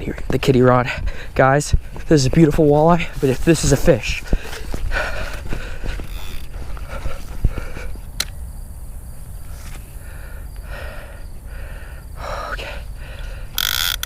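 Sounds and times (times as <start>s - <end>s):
man breathing hard and gasping: 0.9s - 2.0s, 4.2s - 8.0s, 9.9s - 13.6s.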